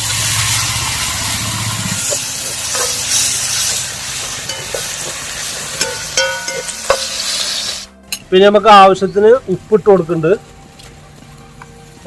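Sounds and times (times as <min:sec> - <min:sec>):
vegetables sizzling in hot oil: 0:00.0 - 0:08.0.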